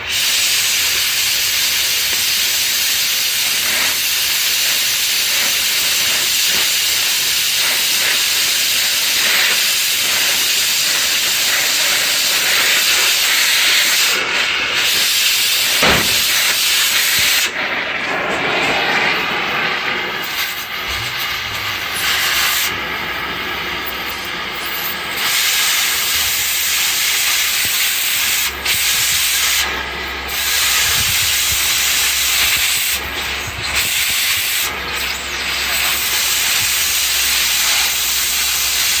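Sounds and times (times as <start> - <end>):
cutting torch hissing: 0.0 - 39.0
sharp knock: 15.8 - 17.4.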